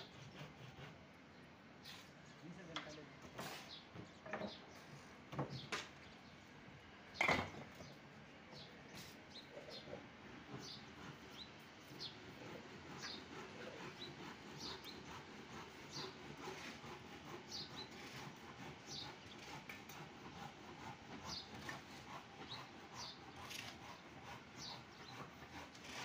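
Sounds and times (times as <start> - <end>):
faint outdoor ambience: 0.0 - 26.0.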